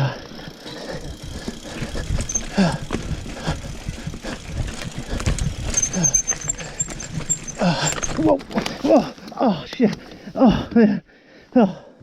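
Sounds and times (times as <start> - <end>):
mountain bike rattling over trail: 0.0 - 9.4
wind and tyres rumbling: 0.0 - 10.7.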